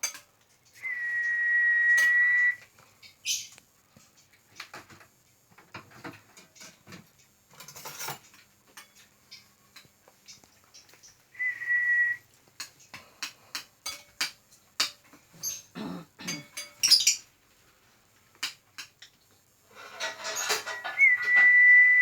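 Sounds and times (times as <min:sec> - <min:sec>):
bird whistle: 0:00.8 - 0:02.6, 0:11.4 - 0:12.2, 0:20.6 - 0:22.0.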